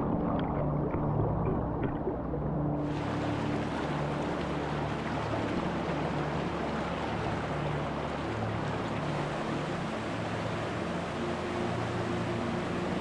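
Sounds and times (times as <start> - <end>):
creek rushing over rocks: 2.8 - 13.0.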